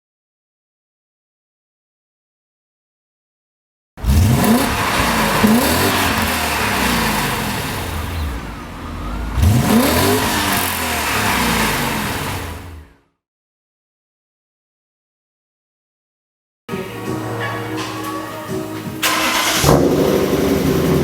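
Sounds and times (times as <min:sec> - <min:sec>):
car exhaust revving: 0:04.0 - 0:13.0, 0:19.0 - 0:21.0.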